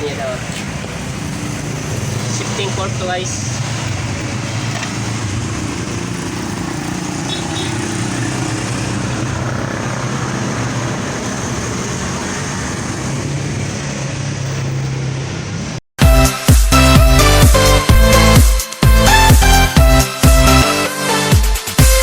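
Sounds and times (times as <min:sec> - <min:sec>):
electronic dance music: 0:16.0 - 0:22.0.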